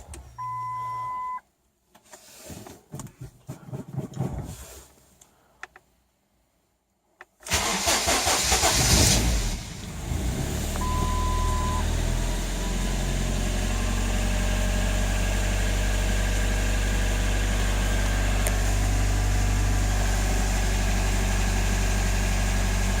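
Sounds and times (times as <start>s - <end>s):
short steady beep: 0.4s - 1.4s, 10.8s - 11.9s
car engine idling: 9.6s - 23.0s.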